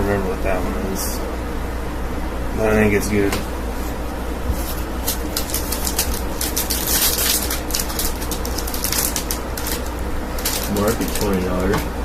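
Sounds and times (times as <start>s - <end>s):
steady low hum: 0.0s - 12.0s
plastic packaging crinkling: 4.5s - 11.9s.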